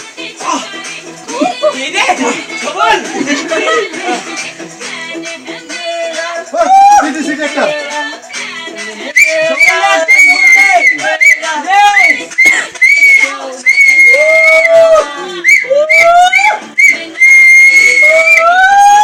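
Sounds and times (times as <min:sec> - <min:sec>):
voices: 0:05.7 - 0:18.8
loud whistling: 0:09.2 - 0:19.0.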